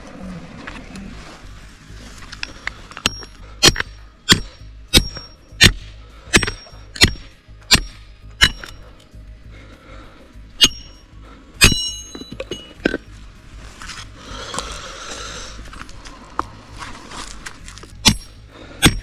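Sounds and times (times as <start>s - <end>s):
hard metallic ringing strikes: 3.0s - 8.8s, 10.6s - 12.8s, 18.0s - 19.0s.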